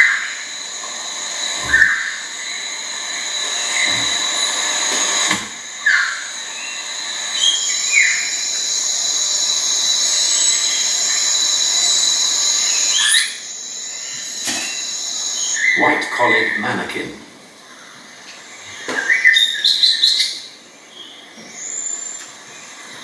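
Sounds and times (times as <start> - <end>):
insects droning: 0.0 - 23.0
sharp bird calls: 5.6 - 16.9, 17.6 - 22.8.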